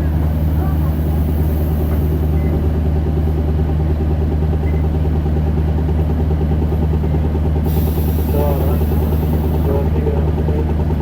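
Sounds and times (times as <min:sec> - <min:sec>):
bus diesel engine running: 0:00.0 - 0:11.0.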